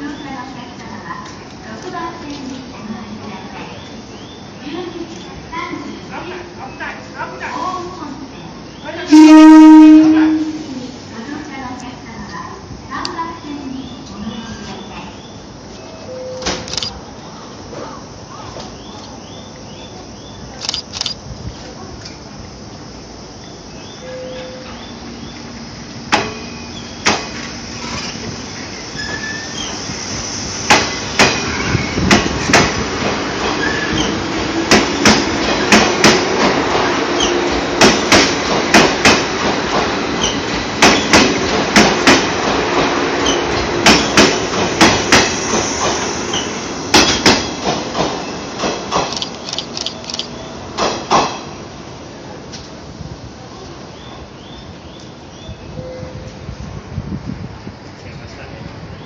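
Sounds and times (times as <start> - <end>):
train rumble: 0.0 - 59.0
train wheels clacking over rail joints: 30.7 - 51.6.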